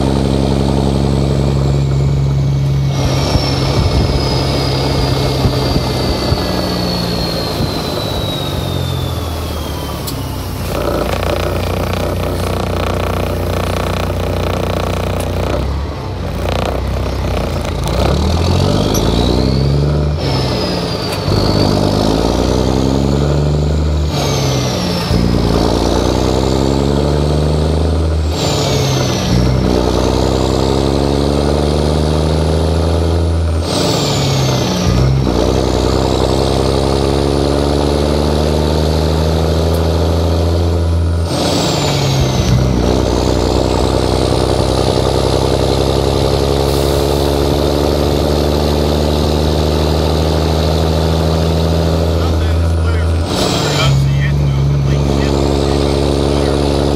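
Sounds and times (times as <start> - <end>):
diesel truck engine revving: 0.0 - 56.9
high whistle: 3.2 - 10.4.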